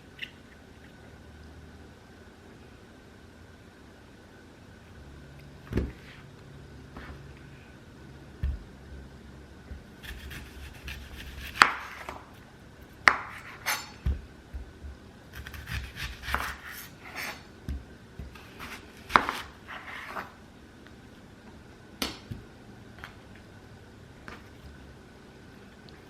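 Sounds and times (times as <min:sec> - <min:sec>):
utensils and dishware clattering: 0:13.6 - 0:14.1.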